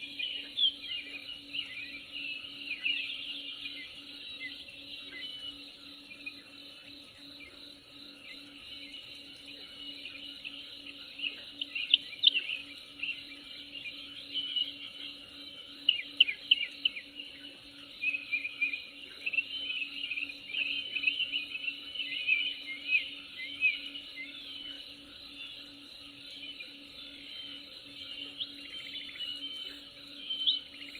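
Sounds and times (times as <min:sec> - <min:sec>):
insect chorus: 0:00.0 - 0:30.9
birds chirping: 0:08.2 - 0:30.9.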